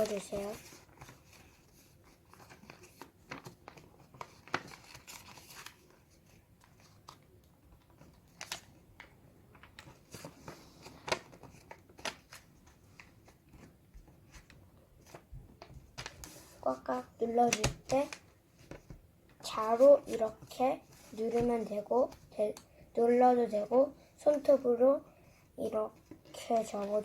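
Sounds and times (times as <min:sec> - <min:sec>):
paper being folded and creased: 0:00.0 - 0:08.8, 0:09.5 - 0:22.6, 0:26.0 - 0:27.0.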